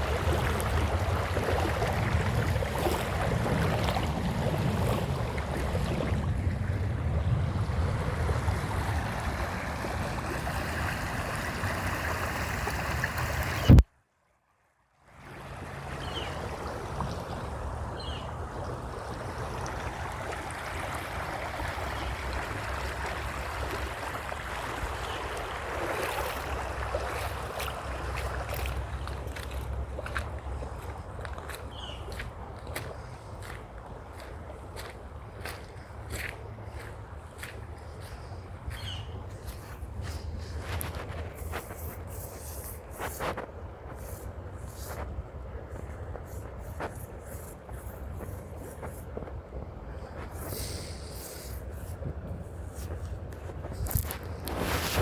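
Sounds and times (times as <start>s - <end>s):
creek water rushing: 0.0s - 13.8s, 15.1s - 55.0s
wind noise on microphone: 0.0s - 13.8s, 38.0s - 55.0s.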